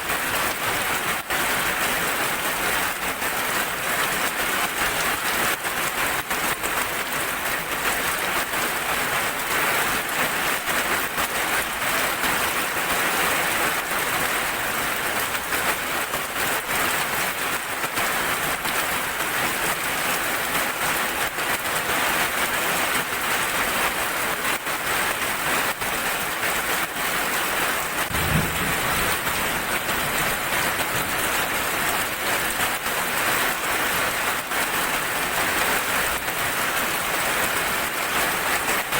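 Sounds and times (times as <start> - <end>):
steady rain falling: 0.0 - 38.9
short low thump: 28.1 - 30.6.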